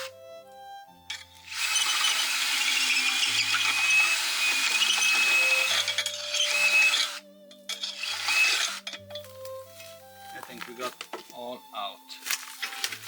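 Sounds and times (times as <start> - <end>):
drill bit squealing on metal: 1.1 - 9.0
electric drill boring wood: 1.1 - 9.0.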